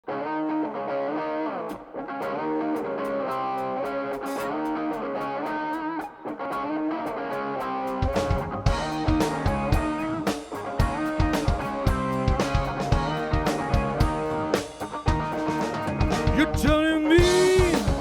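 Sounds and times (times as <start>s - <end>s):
distorted electric guitar solo: 0.0s - 18.0s
drums: 1.7s - 18.0s
bass guitar: 7.9s - 18.0s
light ticking beat: 8.0s - 18.0s.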